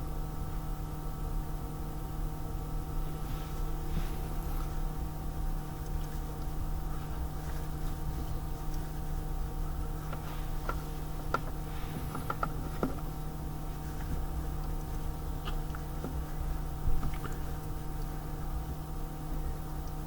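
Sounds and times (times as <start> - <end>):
steady hum with fixed tones: 0.0 - 20.0.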